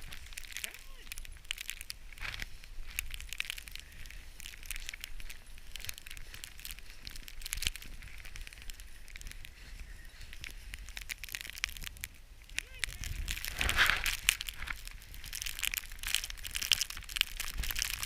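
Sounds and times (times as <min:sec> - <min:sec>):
footsteps crunching through snow: 0:00.0 - 0:18.0.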